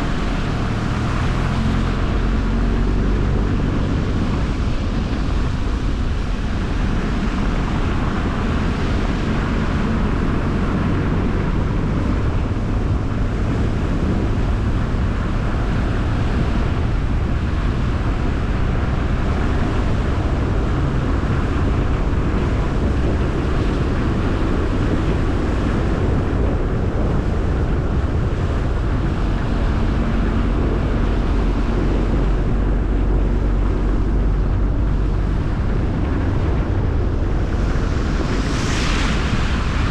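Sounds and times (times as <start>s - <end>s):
car engine hum: 0.0s - 39.9s
tyre and road noise: 0.0s - 39.9s.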